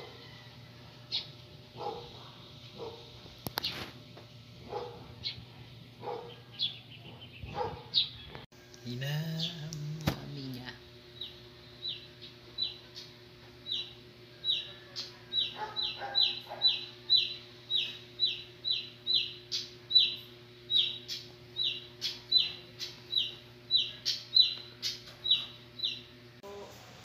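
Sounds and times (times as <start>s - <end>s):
small bird chirping: 1.1s - 1.3s, 6.1s - 8.4s, 11.1s - 26.1s.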